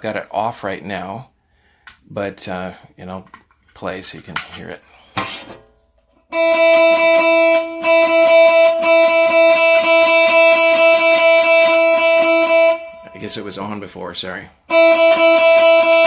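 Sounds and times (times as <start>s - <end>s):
overdriven electric guitar picking: 6.2s - 13.6s, 14.6s - 16.0s.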